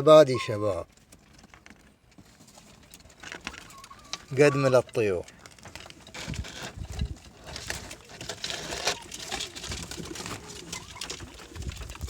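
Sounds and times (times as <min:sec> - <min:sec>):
pigeons pecking grain: 0:00.0 - 0:12.0
pigeons cooing: 0:03.4 - 0:04.9, 0:06.3 - 0:12.0.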